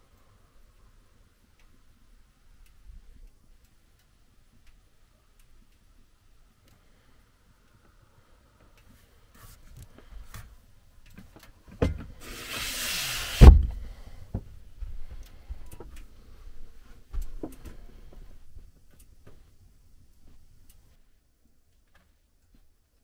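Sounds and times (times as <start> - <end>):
rushing scraping noise: 12.2 - 13.5.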